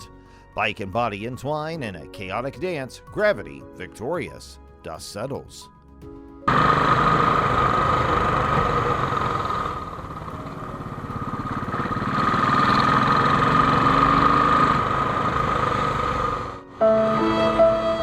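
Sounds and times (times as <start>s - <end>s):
motorcycle engine running: 6.5s - 16.7s.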